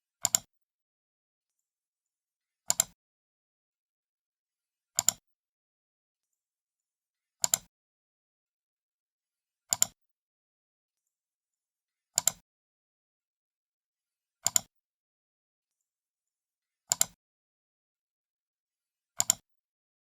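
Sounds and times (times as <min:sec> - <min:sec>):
computer mouse button clicks: 0:05.0 - 0:05.2, 0:07.4 - 0:07.7, 0:09.7 - 0:10.0, 0:16.9 - 0:17.2, 0:19.2 - 0:19.4.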